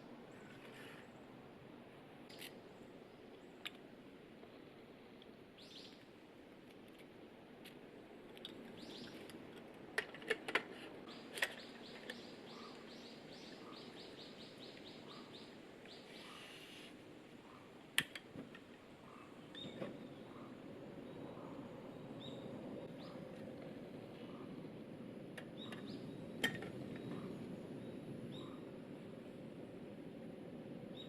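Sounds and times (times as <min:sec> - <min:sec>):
outdoor hush: 0:00.0 - 0:31.0
wild bird calling: 0:11.1 - 0:17.8.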